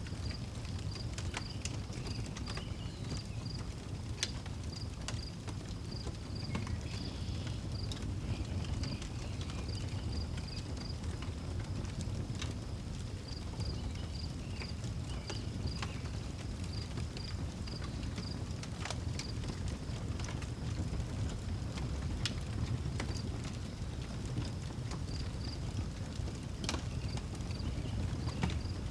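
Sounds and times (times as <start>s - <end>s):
outdoor wood fire crackling: 0.0s - 28.9s.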